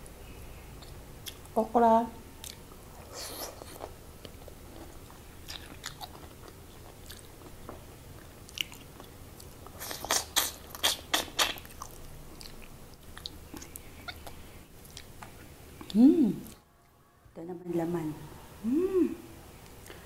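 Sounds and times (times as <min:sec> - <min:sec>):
wet chewing and mouth clicks: 0:03.4 - 0:16.6.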